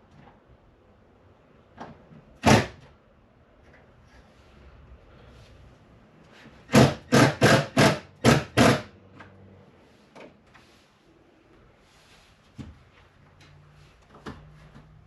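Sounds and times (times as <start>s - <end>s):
hard hammer blows: 6.6s - 9.0s.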